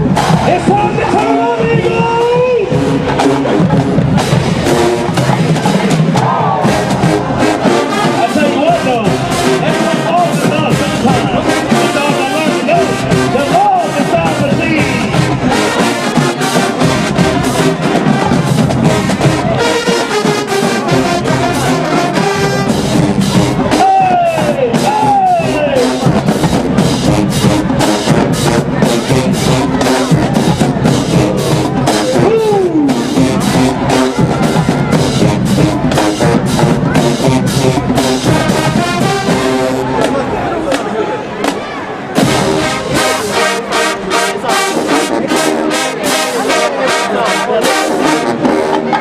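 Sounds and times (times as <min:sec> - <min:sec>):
bass drum strokes: 0:00.0 - 0:13.4, 0:24.6 - 0:40.3, 0:42.2 - 0:44.5
trumpets and trombones: 0:00.0 - 0:41.5, 0:42.1 - 0:49.0
drumline: 0:00.0 - 0:49.0
marching band playing: 0:00.0 - 0:49.0
percussion: 0:00.0 - 0:49.0
brass notes held: 0:06.4 - 0:40.5, 0:42.2 - 0:49.0.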